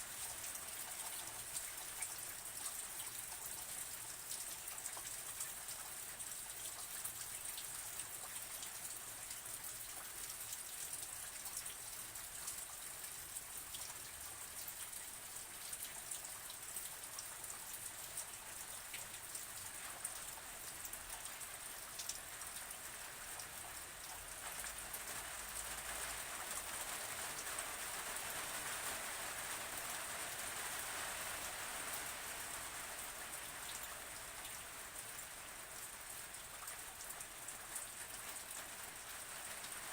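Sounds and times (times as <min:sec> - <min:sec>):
steady rain hissing: 0:00.0 - 0:08.0, 0:11.0 - 0:39.9.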